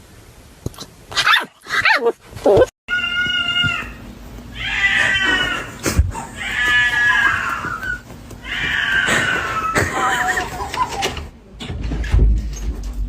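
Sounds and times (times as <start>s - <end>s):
cat meowing: 2.9s - 4.0s, 4.6s - 5.7s, 6.3s - 10.4s.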